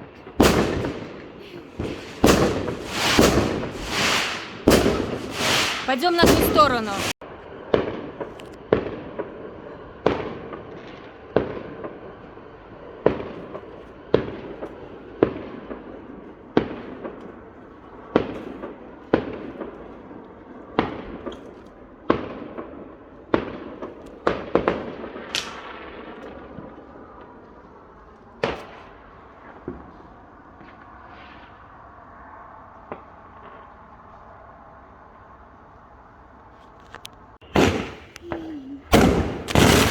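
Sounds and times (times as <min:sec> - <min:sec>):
fireworks banging: 0:00.2 - 0:07.2, 0:37.4 - 0:39.9.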